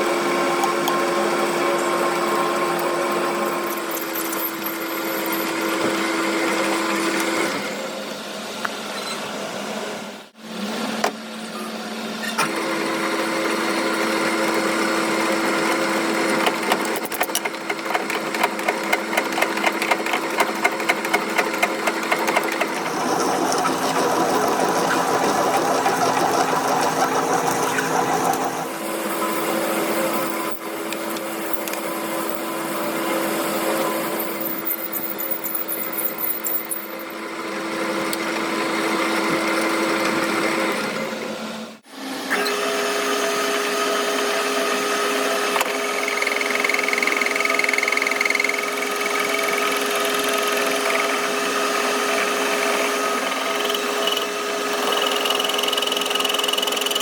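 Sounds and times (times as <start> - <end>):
power tool motor hum: 42.1 - 57.0.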